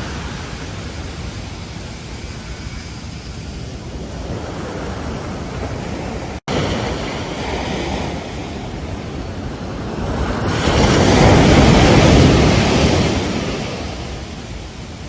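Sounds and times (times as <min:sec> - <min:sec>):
ocean waves breaking on beach: 0:00.0 - 0:15.0.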